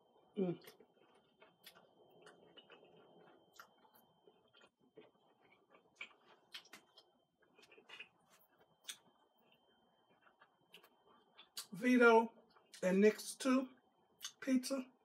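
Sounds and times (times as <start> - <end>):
chewing with mouth clicks: 0.5 - 11.7, 14.2 - 14.4.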